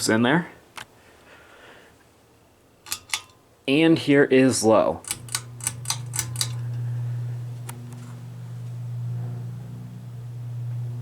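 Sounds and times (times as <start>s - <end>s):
ceiling fan motor humming: 2.8s - 11.0s
light click: 5.0s - 6.8s.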